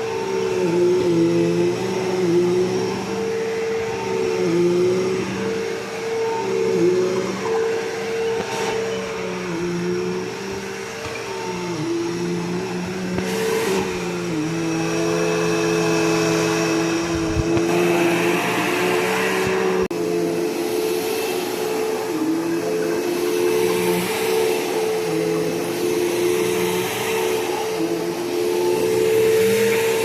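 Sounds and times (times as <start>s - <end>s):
vacuum cleaner motor whine: 0.0s - 30.0s.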